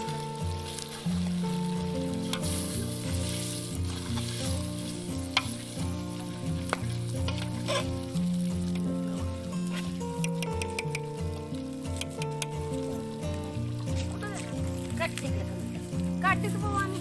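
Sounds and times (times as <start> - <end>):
food sizzling in a pot: 0.0 - 17.0
instrumental music with bass: 0.0 - 17.0
sharp clicks: 10.2 - 11.2, 11.9 - 12.6.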